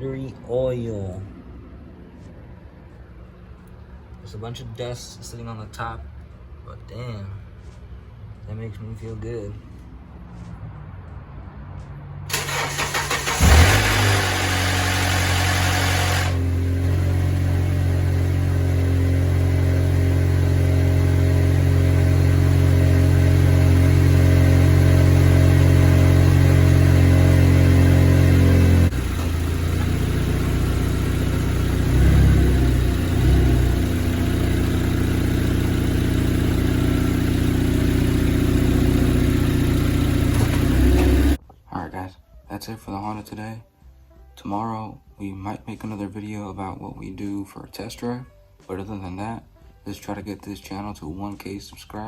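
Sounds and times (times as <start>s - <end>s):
car engine starting and idling loudly: 12.3s - 41.4s.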